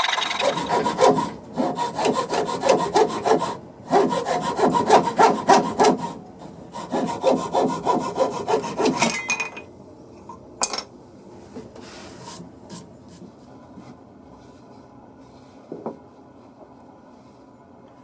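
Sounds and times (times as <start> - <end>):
saw cutting wood: 0.0 - 6.0.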